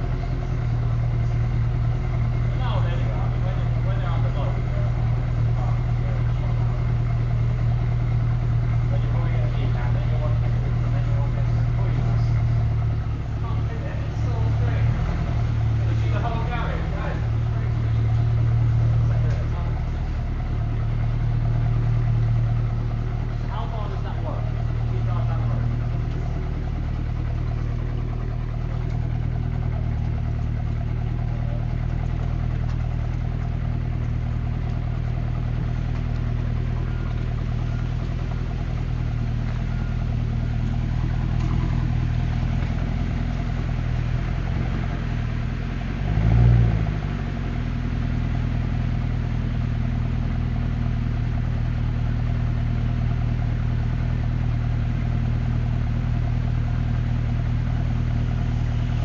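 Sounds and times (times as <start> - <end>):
car engine idling: 0.0 - 59.0
engine revving: 21.0 - 49.4.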